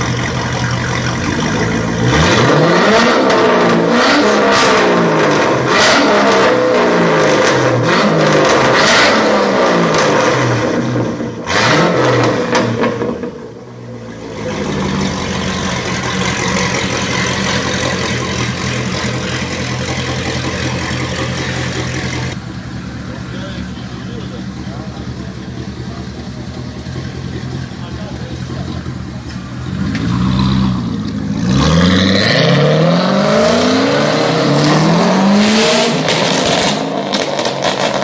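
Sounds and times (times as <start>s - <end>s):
car engine accelerating: 0.0s - 38.0s
exhaust crackles: 0.0s - 38.0s
steady engine note: 14.2s - 36.8s.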